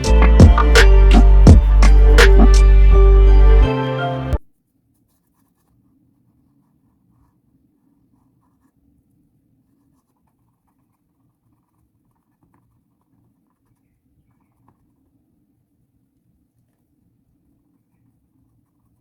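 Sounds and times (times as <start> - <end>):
paintbrush strokes on canvas: 4.6 - 19.0.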